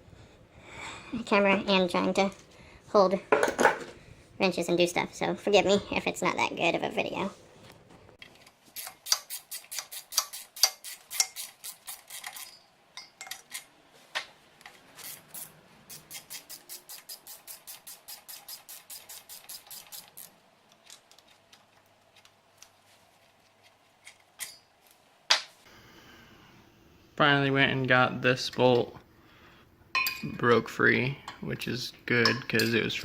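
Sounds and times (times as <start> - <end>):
ratchet wrench clicking: 8.8 - 12.6, 15.0 - 20.3.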